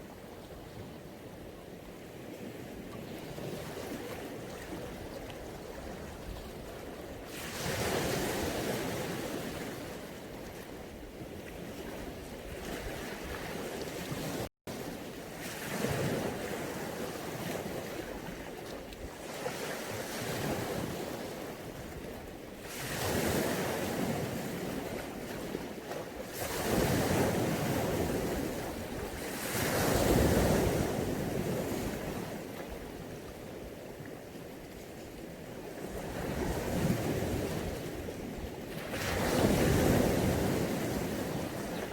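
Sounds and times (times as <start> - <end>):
sea waves washing ashore: 0.0 - 41.9.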